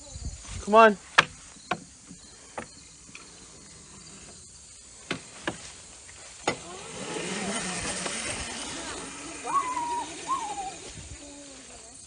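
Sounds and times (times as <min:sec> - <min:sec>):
engine running low: 0:05.2 - 0:11.8.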